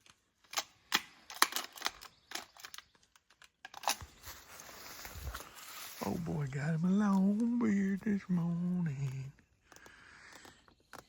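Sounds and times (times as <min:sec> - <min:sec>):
sharp irregular clicks: 0:07.1 - 0:11.0.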